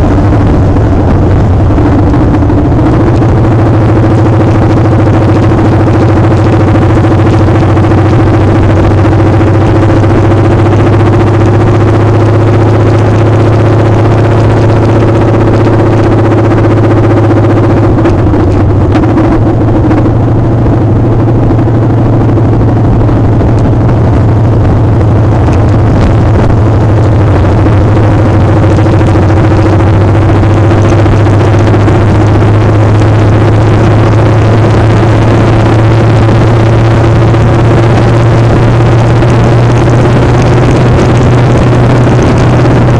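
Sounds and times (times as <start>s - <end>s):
motorcycle engine running: 0.0s - 42.9s
wind noise: 0.0s - 42.9s.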